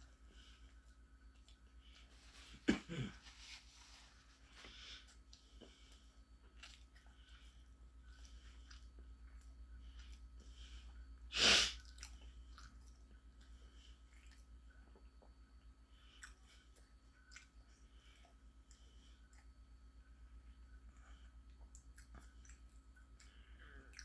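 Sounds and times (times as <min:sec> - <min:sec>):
low steady hum: 0:00.0 - 0:24.0
close-up chewing: 0:05.1 - 0:11.1, 0:11.8 - 0:24.0.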